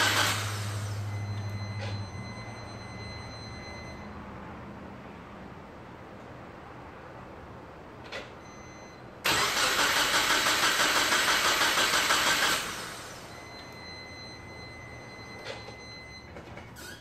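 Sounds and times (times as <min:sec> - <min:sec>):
engine cranking by starter: 0:00.0 - 0:01.0, 0:09.2 - 0:13.3.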